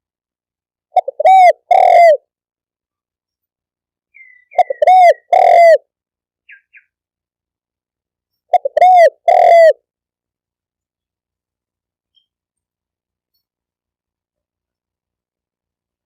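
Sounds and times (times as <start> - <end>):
dove cooing: 0.9 - 2.3, 4.2 - 5.9, 8.5 - 9.8.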